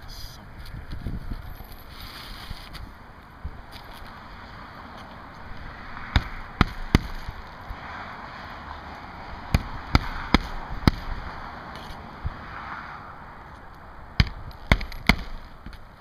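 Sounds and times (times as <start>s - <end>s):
hammer driving nails into shingles: 14.2s - 15.4s.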